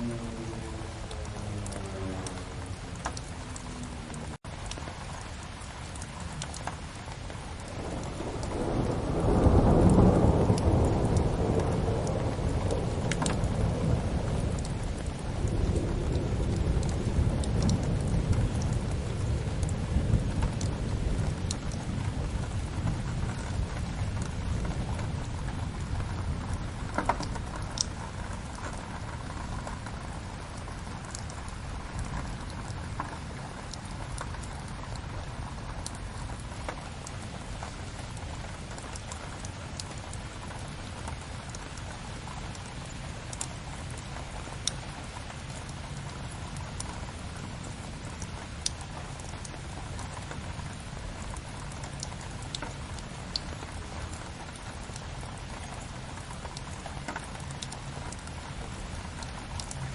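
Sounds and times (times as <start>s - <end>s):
steady rain: 0.0s - 59.9s
wood fire crackles: 1.0s - 59.9s
thunder rolling: 7.7s - 30.0s.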